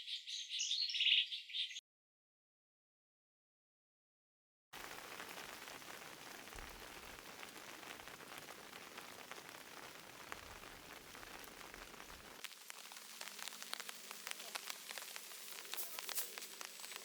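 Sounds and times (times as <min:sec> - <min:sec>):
rain drops tapping on a surface: 0:04.8 - 0:17.0.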